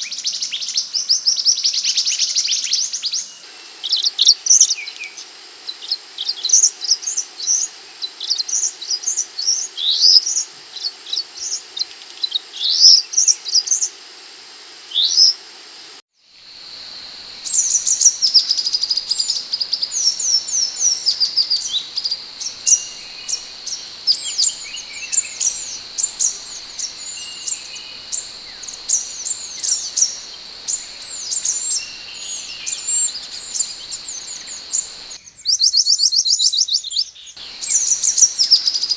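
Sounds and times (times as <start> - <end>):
steady high-pitched hum: 16.4 - 35.2, 37.4 - 38.9
bird high sweeping chirps: 16.6 - 35.2, 37.4 - 38.9.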